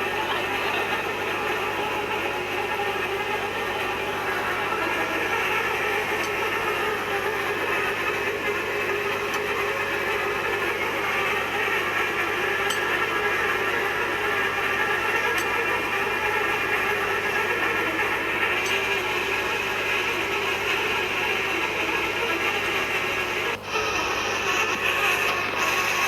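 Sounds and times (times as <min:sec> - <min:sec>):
machinery running: 0:00.0 - 0:26.0.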